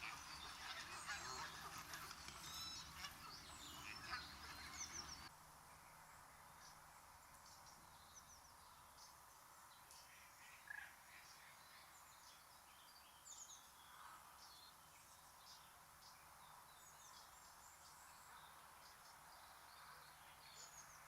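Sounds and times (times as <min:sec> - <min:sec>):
geese honking: 0:00.0 - 0:05.3
faint outdoor ambience: 0:00.0 - 0:21.0.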